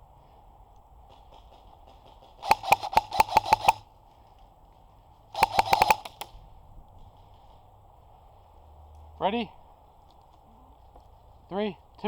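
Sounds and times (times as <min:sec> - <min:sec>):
airsoft gun firing: 0:02.4 - 0:03.8, 0:05.4 - 0:06.3.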